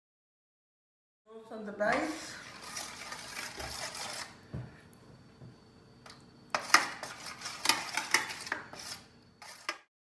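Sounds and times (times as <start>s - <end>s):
spoon scraping and clinking on pan: 2.0s - 4.4s, 6.5s - 9.9s.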